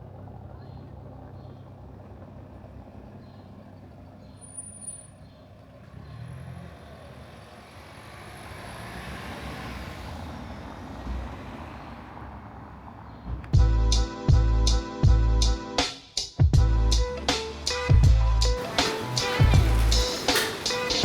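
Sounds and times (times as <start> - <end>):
vehicle passing: 5.2 - 13.6, 16.7 - 21.0
high-pitched squeal: 16.7 - 21.0.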